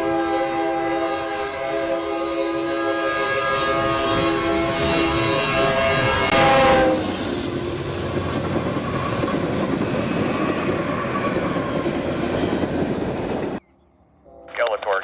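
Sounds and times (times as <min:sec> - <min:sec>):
train wheels rolling on rails: 0:03.5 - 0:13.6.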